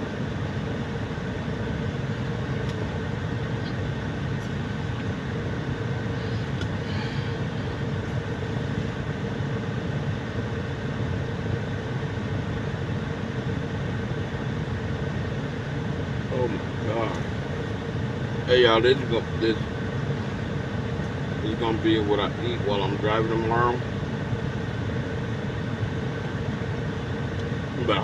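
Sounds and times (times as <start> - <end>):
truck machinery droning: 0.0 - 9.6.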